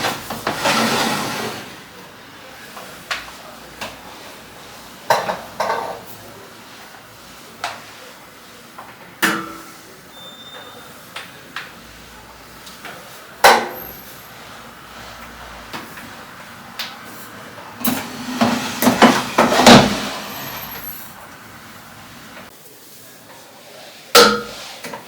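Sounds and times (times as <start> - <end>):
cupboard doors shutting: 0.0 - 1.8, 17.8 - 22.5
things being set down: 17.8 - 21.1.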